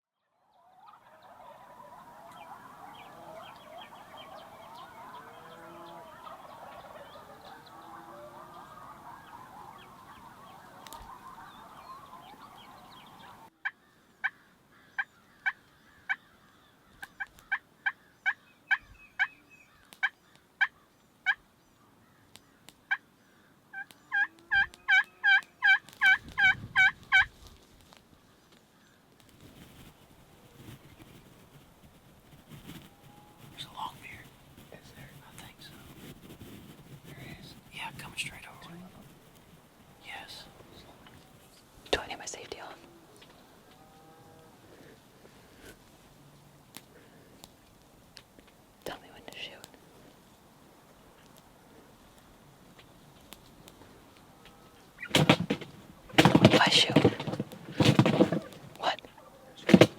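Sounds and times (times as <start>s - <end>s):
turkey yelps: 0.5s - 13.5s, 23.7s - 27.3s
many birds chattering: 0.5s - 21.4s, 33.4s - 39.2s, 40.0s - 43.7s, 54.8s - 59.9s.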